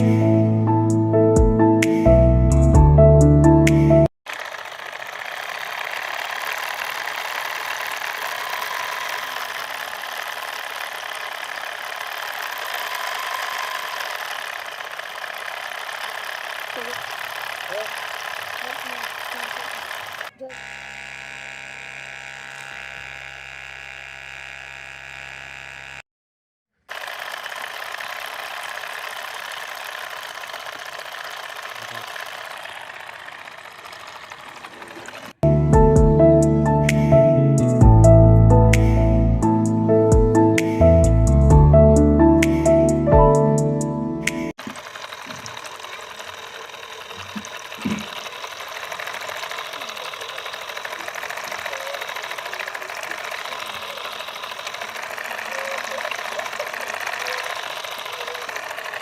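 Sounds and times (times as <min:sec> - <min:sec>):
small electric motor whirring: 0:04.3 - 0:26.0, 0:26.8 - 0:35.4, 0:44.5 - 0:59.0.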